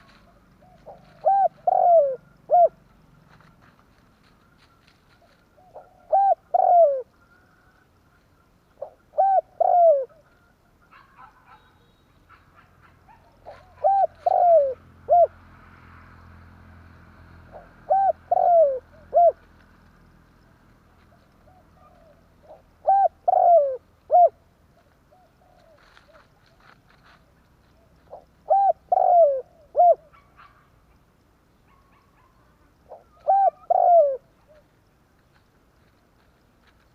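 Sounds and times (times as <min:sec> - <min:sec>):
dove cooing: 0:00.0 - 0:03.6, 0:04.3 - 0:11.7, 0:12.3 - 0:15.5, 0:17.4 - 0:19.6, 0:20.9 - 0:26.8, 0:27.7 - 0:30.6, 0:31.7 - 0:34.7.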